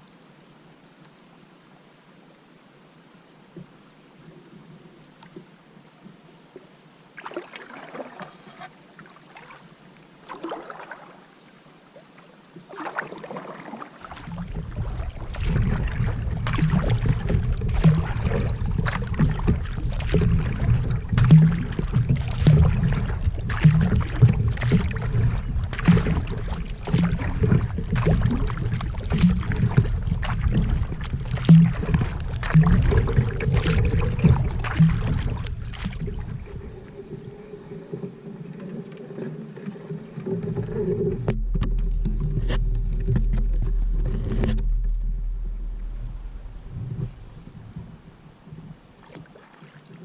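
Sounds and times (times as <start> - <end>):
kayak paddle splashing in water: 7.2 - 11.3, 11.9 - 47.9, 48.8 - 50.0
steady low rumble: 14.1 - 38.2, 40.6 - 48.4.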